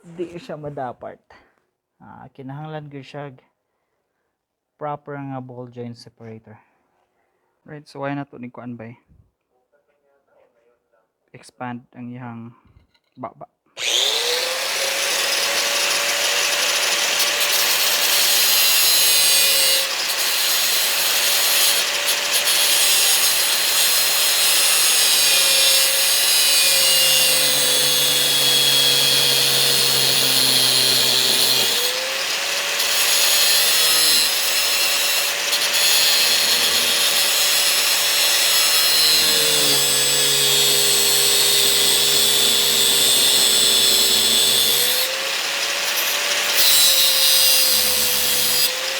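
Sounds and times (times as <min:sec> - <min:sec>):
electric grinder grinding metal: 0:13.8 - 0:48.9.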